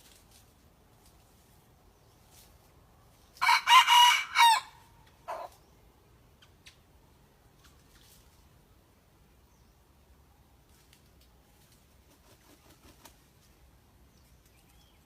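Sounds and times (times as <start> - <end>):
rooster crowing: 3.4 - 5.4.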